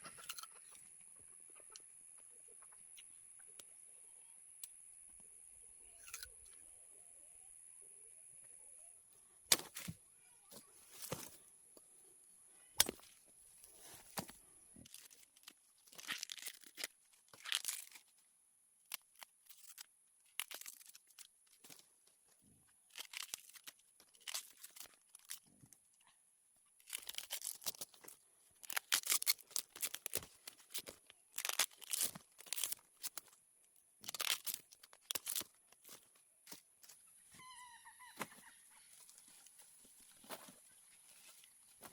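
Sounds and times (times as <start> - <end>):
dry leaves rustling and tearing: 14.9 - 18.1, 18.9 - 21.8, 22.9 - 25.4, 26.8 - 33.4, 34.0 - 36.1.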